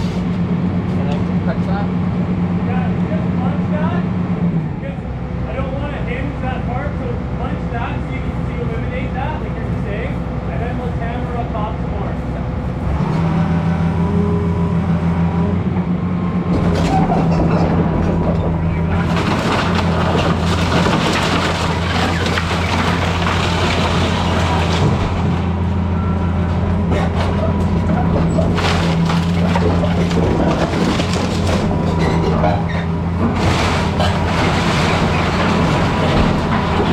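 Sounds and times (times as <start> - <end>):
excavator diesel engine running: 0.0 - 36.9
timber and debris crunching: 16.4 - 36.9.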